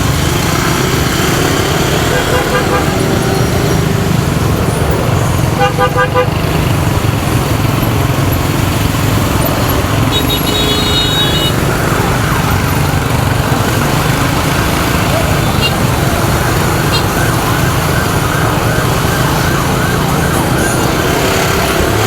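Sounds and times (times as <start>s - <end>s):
motorcycle engine: 0.0s - 22.0s
street traffic: 0.0s - 22.0s
high-pitched beeping horn: 1.8s - 3.8s, 9.4s - 11.9s, 15.1s - 17.3s.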